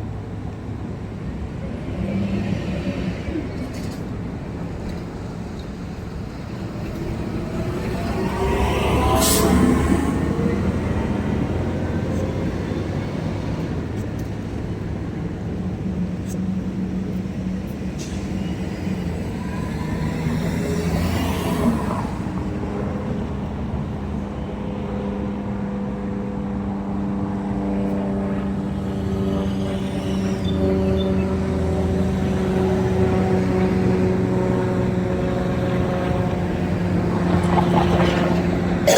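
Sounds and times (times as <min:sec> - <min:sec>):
vehicle engine and road noise: 0:00.0 - 0:38.9
vehicle passing: 0:06.2 - 0:14.0, 0:16.8 - 0:23.1.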